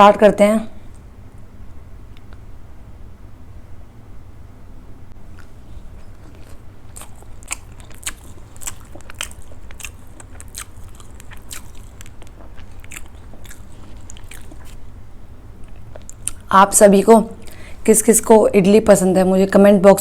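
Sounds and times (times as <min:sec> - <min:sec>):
chewing: 0:05.3 - 0:15.0, 0:15.6 - 0:16.5
sharp mouth clicks: 0:15.6 - 0:16.5.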